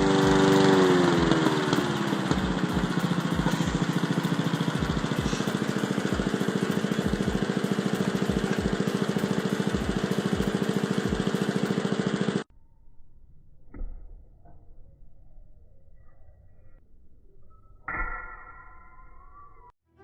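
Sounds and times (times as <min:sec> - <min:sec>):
lawn mower engine running: 0:00.0 - 0:12.5.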